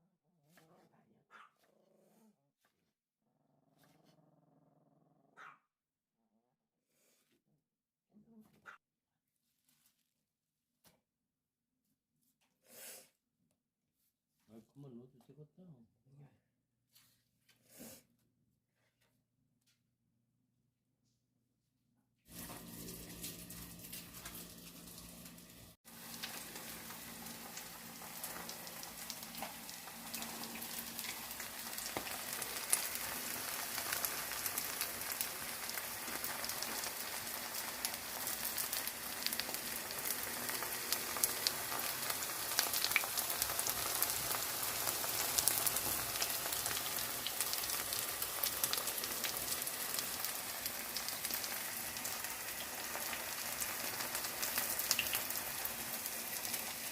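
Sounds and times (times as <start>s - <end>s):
batter frying in oil: 22.3s - 56.9s.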